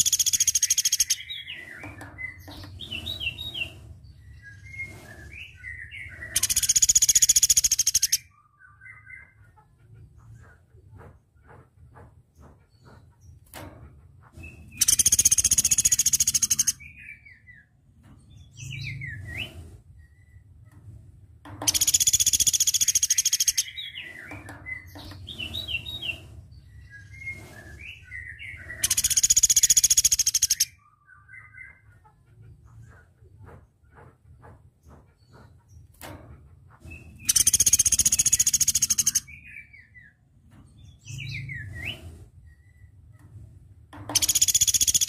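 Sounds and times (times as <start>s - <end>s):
bird trilling: 0.0s - 1.5s, 6.0s - 8.2s, 14.8s - 16.8s, 21.7s - 24.1s, 28.1s - 30.7s, 37.2s - 39.2s, 44.1s - 45.0s
bird chirps sliding downward: 44.2s - 45.0s.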